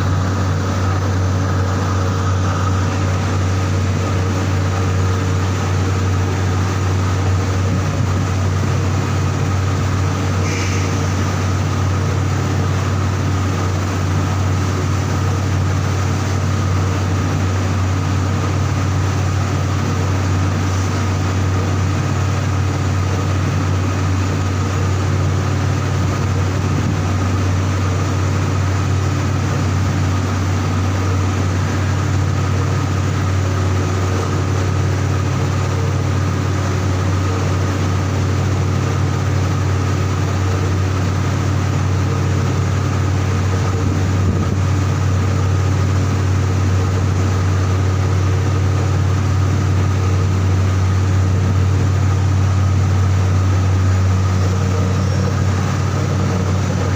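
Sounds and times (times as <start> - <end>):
heavy machinery deep hum: 0.0 - 56.9.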